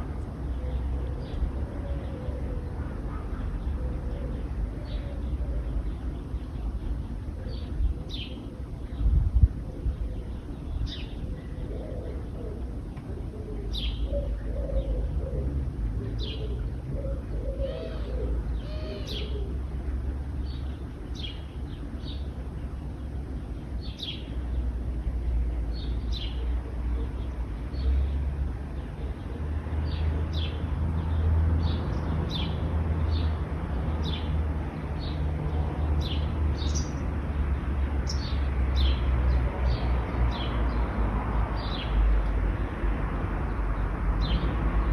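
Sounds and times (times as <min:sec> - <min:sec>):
small birds chirping: 0:00.0 - 0:15.4, 0:16.0 - 0:42.8
road traffic rumble: 0:00.0 - 0:44.9
dove cooing: 0:00.5 - 0:06.0, 0:11.2 - 0:19.8.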